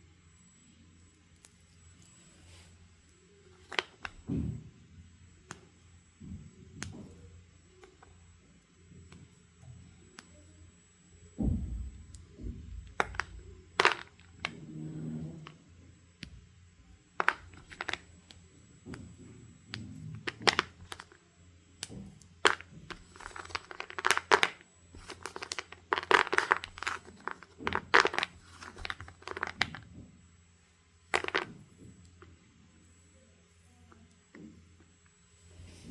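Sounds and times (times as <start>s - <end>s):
wet chalk scraping and crunching: 22.4s - 29.8s.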